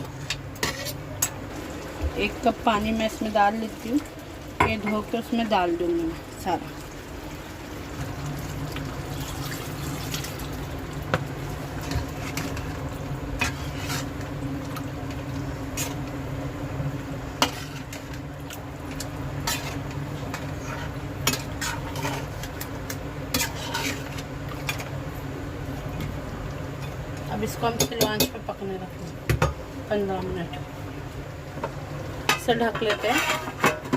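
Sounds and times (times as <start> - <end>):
steady low hum: 0.0 - 33.5
metal spoon scraping a pot: 0.1 - 1.0, 13.4 - 14.2, 19.4 - 22.5, 23.3 - 24.2, 32.8 - 33.9.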